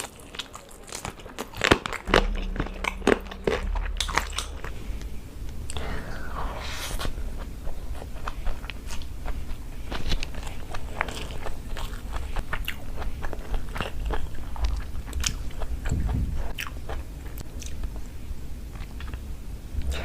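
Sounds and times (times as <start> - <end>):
person chewing food: 7.4 - 18.0.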